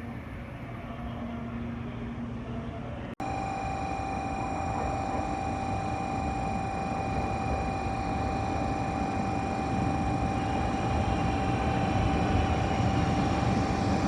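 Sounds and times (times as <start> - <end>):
high whine: 3.2 - 14.0
train running rumble: 3.8 - 14.0.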